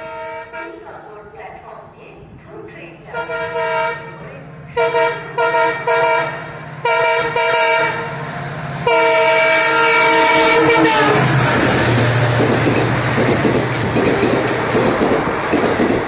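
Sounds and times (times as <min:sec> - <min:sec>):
locomotive air horn blasts: 0:00.0 - 0:00.8, 0:03.1 - 0:08.2, 0:08.8 - 0:12.0
diesel locomotive engine drone: 0:00.0 - 0:16.0
train rushing past: 0:00.0 - 0:16.0.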